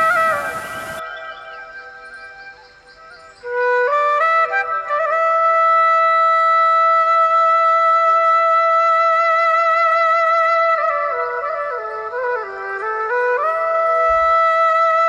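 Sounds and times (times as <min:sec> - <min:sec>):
flute-like long note: 0:00.0 - 0:15.0.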